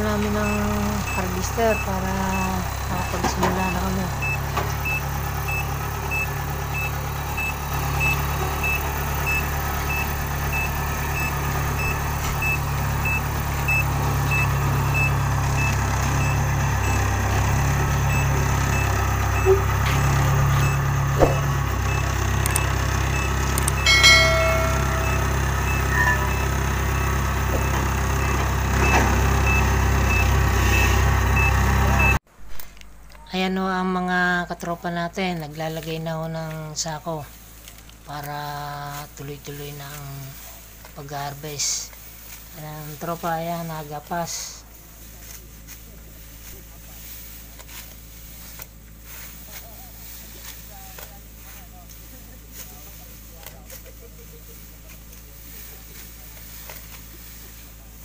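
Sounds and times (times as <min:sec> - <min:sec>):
reverse alarm beeping: 0:00.0 - 0:32.2
diesel engine running: 0:00.0 - 0:58.0.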